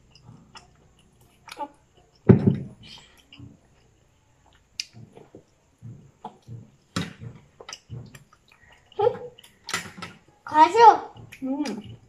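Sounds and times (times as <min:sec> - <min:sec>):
chewing and mouth noises: 0:00.0 - 0:10.5, 0:11.1 - 0:12.0
sharp mouth clicks: 0:02.8 - 0:03.6, 0:04.5 - 0:05.5, 0:07.6 - 0:09.8.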